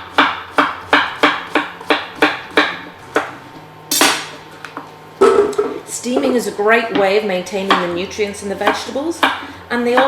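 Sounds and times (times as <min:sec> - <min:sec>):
knife chopping on cutting board: 0:00.0 - 0:04.4, 0:08.6 - 0:10.0.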